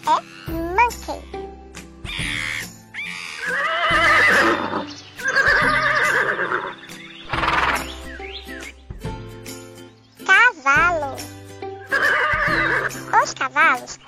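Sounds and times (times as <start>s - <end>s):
children's background music: 0.0s - 14.0s
horse whinnying: 2.1s - 8.0s, 11.9s - 13.1s.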